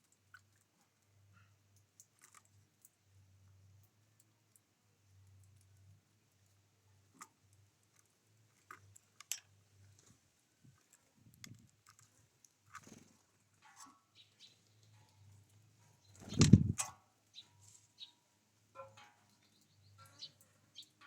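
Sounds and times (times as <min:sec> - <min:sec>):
birds clicking and tapping: 0:05.2 - 0:21.0.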